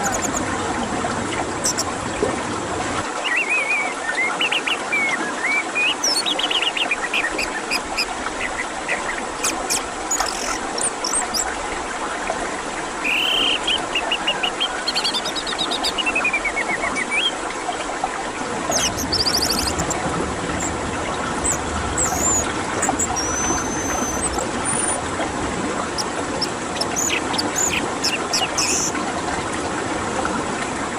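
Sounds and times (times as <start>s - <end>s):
songbird singing: 0.0s - 0.4s, 1.6s - 1.9s, 3.1s - 11.5s, 13.0s - 17.4s, 18.7s - 25.0s, 25.9s - 29.0s
running water: 0.0s - 30.9s.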